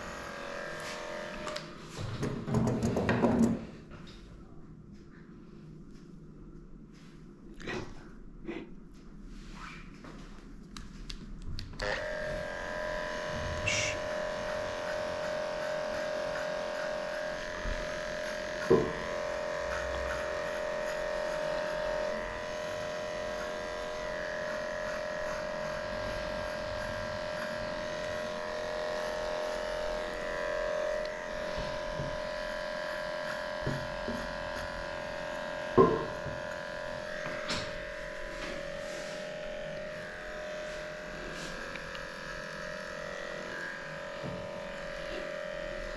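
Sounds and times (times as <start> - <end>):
electric clippers whining: 0.0 - 1.8, 11.8 - 45.9.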